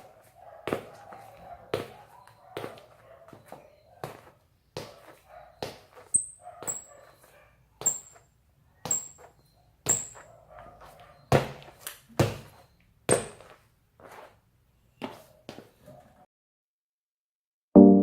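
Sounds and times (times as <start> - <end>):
sharp thuds with squeaks: 8.8 - 13.4.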